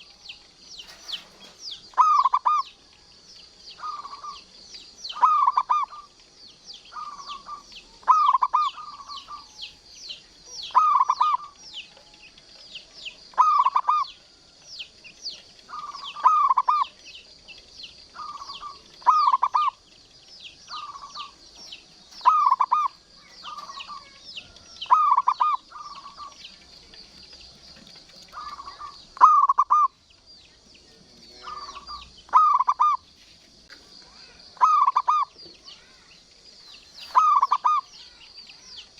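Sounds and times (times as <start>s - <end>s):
dove rolling coos: 0.8s - 3.0s, 3.8s - 4.5s, 5.1s - 6.2s, 6.9s - 9.6s, 10.6s - 12.5s, 13.3s - 14.6s, 15.6s - 17.0s, 18.0s - 20.0s, 20.6s - 21.4s, 22.2s - 30.0s, 31.4s - 33.0s, 34.3s - 36.0s, 37.0s - 37.9s
fast high chirping: 13.3s - 30.2s, 34.1s - 38.9s.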